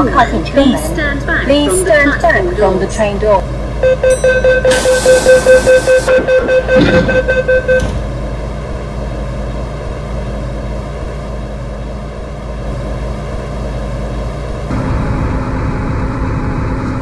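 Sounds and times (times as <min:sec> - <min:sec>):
train rumble and hum: 0:00.0 - 0:17.0
train door-closing chime: 0:04.1 - 0:08.0.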